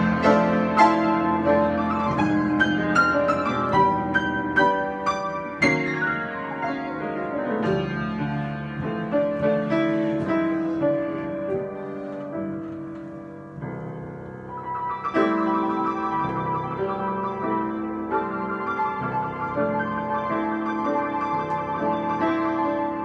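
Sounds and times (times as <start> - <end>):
solo piano: 0.0 - 23.0.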